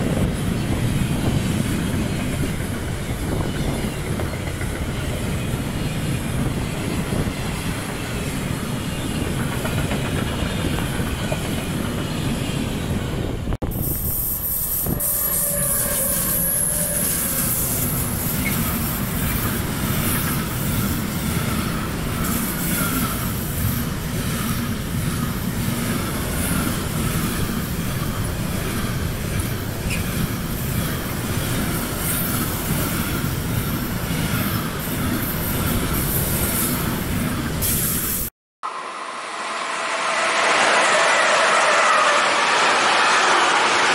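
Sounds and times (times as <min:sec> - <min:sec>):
train wheels rumbling on rails: 0:00.0 - 0:38.3
wheel squeal: 0:14.1 - 0:19.5, 0:39.6 - 0:43.9.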